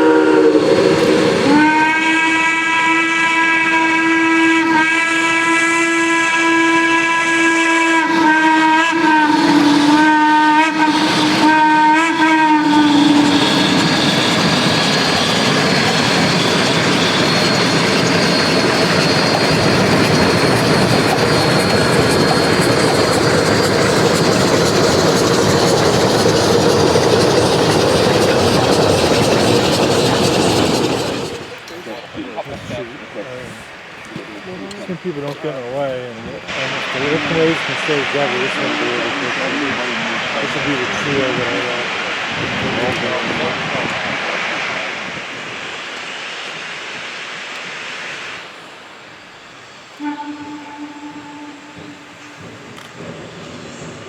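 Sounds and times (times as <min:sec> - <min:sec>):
steam locomotive whistle: 0:00.0 - 0:31.5, 0:49.7 - 0:52.9
train hissing and rumbling past: 0:00.0 - 0:54.0.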